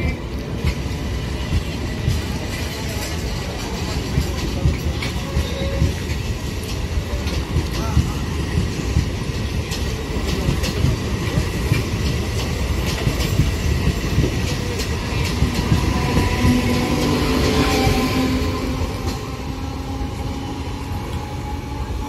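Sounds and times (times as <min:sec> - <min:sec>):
train rumbling past: 0:00.0 - 0:22.0
train motor hum: 0:05.8 - 0:22.0.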